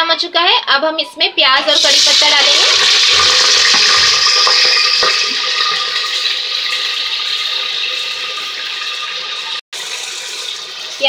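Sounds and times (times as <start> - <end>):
onions sizzling in hot oil: 1.6 - 11.0.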